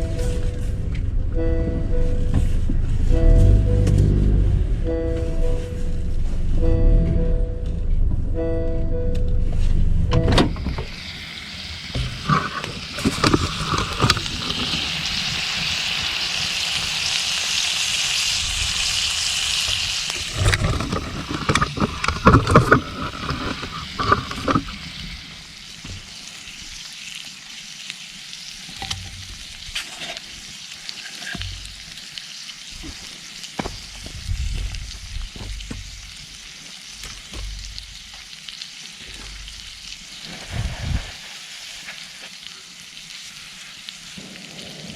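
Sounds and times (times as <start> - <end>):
food sizzling in oil: 10.9 - 44.9
utensils knocking on pan: 31.3 - 31.8, 37.2 - 38.0.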